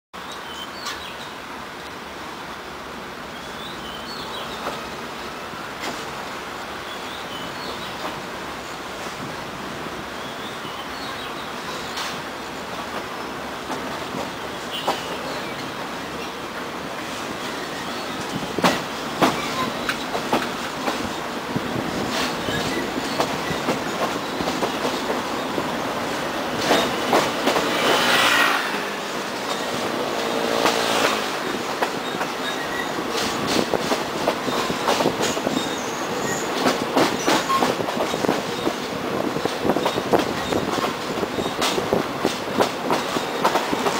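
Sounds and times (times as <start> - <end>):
rush of train noise: 0.2 - 43.9
train wheels clicking over rail joints: 5.8 - 6.3, 11.6 - 43.9.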